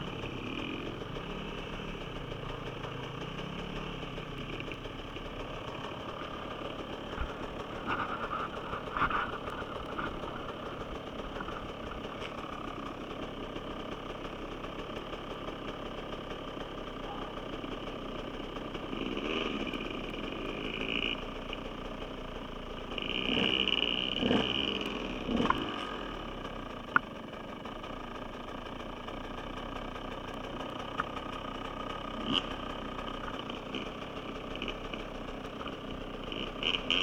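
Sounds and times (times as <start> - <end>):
dirt bike engine revving: 0.0 - 12.4, 18.9 - 21.2, 23.0 - 26.3, 32.2 - 32.6, 33.2 - 35.0, 36.2 - 37.0.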